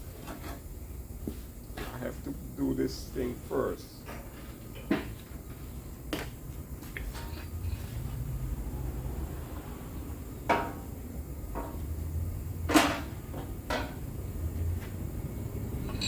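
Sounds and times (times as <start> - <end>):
steady low hum: 0.0 - 16.0
metallic knocks and clunks: 12.7 - 14.0.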